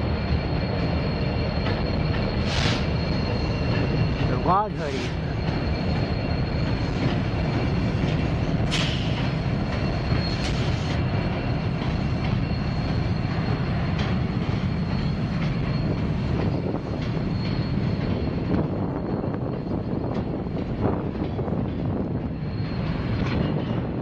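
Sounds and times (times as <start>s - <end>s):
freight train rumbling over bridge: 0.0s - 24.0s
high-pitched wheel squeal: 0.1s - 19.2s
sharp screeches: 0.8s - 8.0s, 8.6s - 11.7s.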